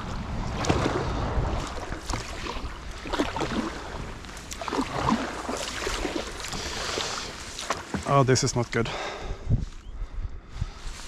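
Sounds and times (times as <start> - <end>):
paddle splashing in water: 0.0 - 8.7.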